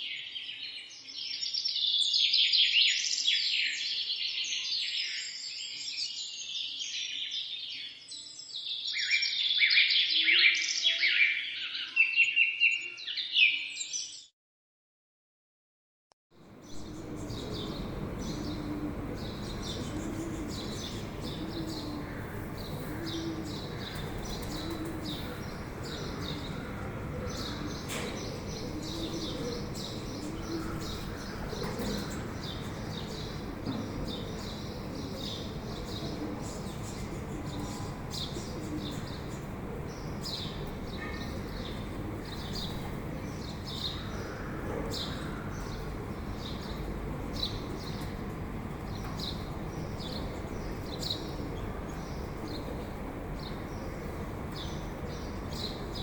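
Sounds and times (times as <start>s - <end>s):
birds chirping: 16.4s - 56.0s
steady background hiss: 16.4s - 56.0s
dove cooing: 16.5s - 56.0s.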